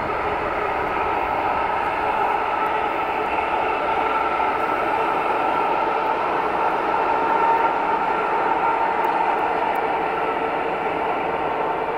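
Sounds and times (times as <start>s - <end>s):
electric train rolling past: 0.0s - 11.9s.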